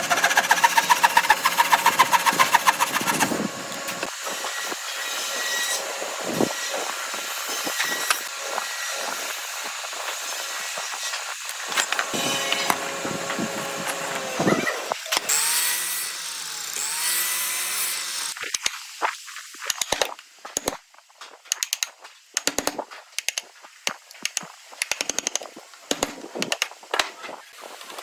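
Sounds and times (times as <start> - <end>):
power tool running: 0.0 - 18.4
sharp clicks and taps: 19.6 - 20.8, 21.5 - 27.1.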